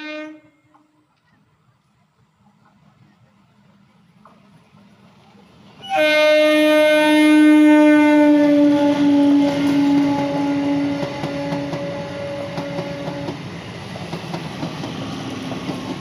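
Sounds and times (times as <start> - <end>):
train horn blast: 0.0 - 1.0, 5.8 - 13.4
train wheels clattering on rails: 4.1 - 5.1, 8.9 - 16.0.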